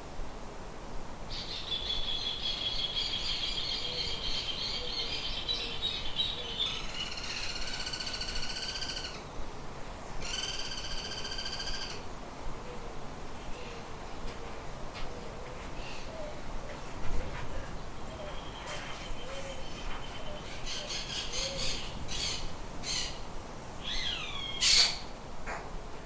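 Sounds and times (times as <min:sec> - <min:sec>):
bird high trill: 0:10.2 - 0:12.0
harsh buzzy bird calls: 0:10.2 - 0:12.0.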